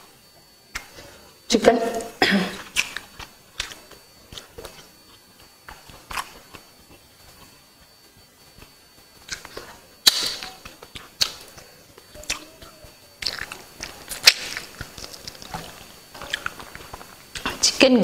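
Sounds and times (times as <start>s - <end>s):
woman chewing food: 0.4s - 17.6s
wet mouth smacks: 9.3s - 11.5s.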